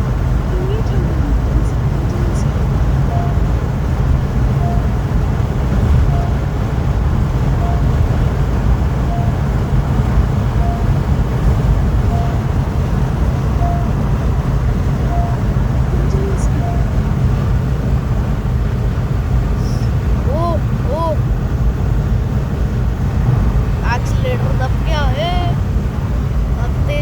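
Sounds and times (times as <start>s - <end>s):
car engine and tyre rumble: 0.0s - 27.0s
short beeps: 3.1s - 3.5s, 4.6s - 5.0s, 6.0s - 6.5s, 7.6s - 8.0s, 9.1s - 9.4s, 10.6s - 10.9s, 12.1s - 12.5s, 13.6s - 14.0s, 15.1s - 17.0s.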